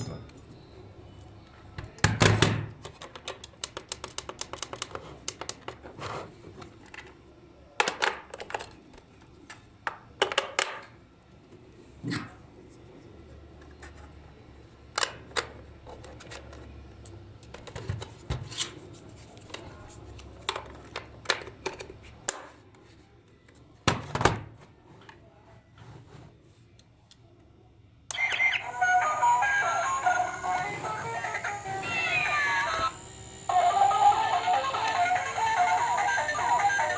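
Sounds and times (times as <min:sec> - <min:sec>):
toy parts clicking and tapping: 0:02.8 - 0:05.8.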